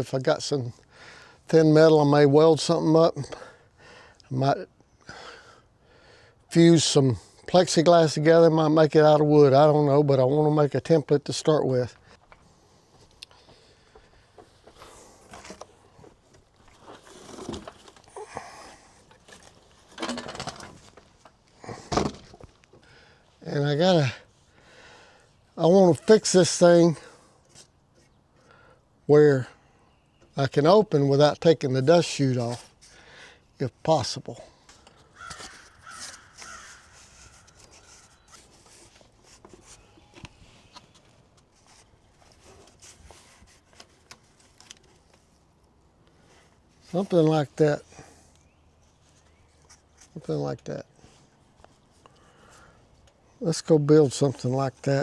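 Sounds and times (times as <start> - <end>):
handling rustles and scrapes: 11.9 - 22.8, 25.9 - 28.2, 32.1 - 33.0, 33.9 - 55.0
crow cawing: 35.1 - 38.3.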